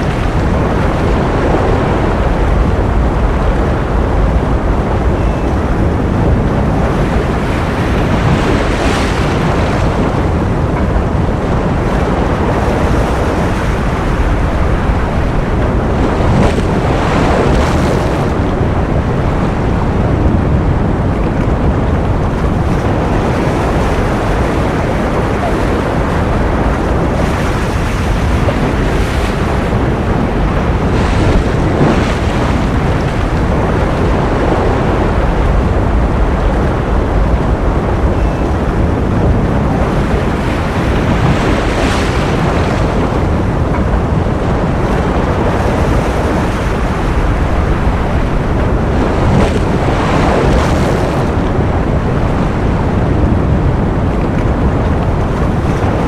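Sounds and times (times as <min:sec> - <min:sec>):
ocean waves breaking: 0:00.0 - 0:56.0.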